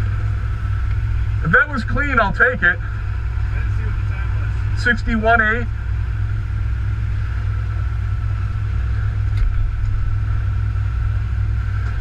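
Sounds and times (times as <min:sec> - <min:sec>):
race car engine rumbling: 0:00.0 - 0:12.0.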